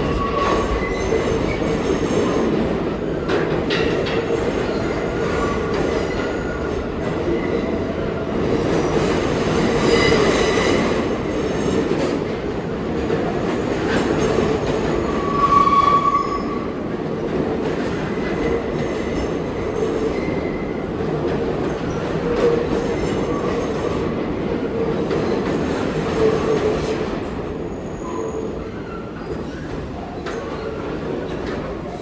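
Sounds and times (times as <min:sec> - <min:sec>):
subway train wheels rumbling: 0:00.0 - 0:32.0
wheel squeals: 0:15.0 - 0:16.7.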